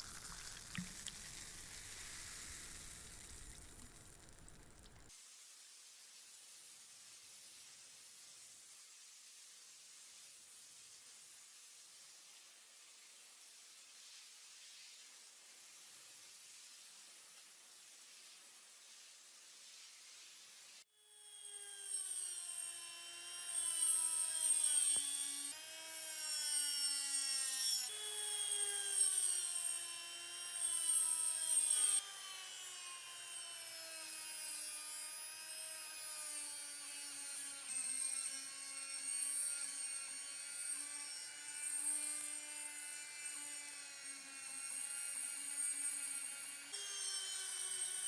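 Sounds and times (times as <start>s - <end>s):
electric power tool whining: 21.2s - 42.6s, 44.2s - 48.0s.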